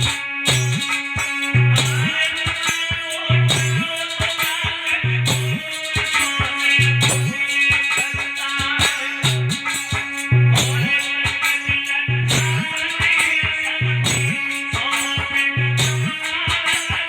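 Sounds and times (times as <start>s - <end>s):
repeating bass line: 0.0s - 2.2s, 3.2s - 4.0s, 5.0s - 5.8s, 6.8s - 16.5s
drum beat: 0.0s - 17.0s.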